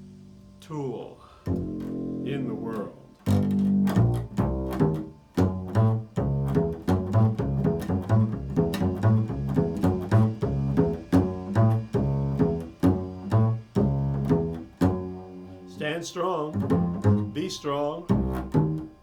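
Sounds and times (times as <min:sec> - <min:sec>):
plucked bass string notes: 0:00.0 - 0:19.0.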